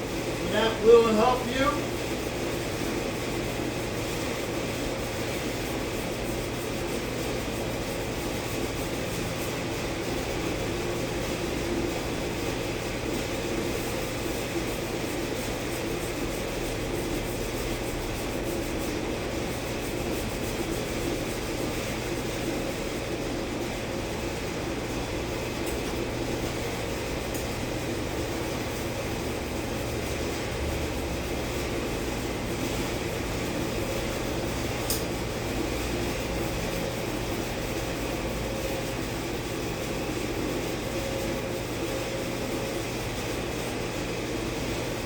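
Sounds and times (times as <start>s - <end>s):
machine hum and hiss: 0.0s - 45.0s.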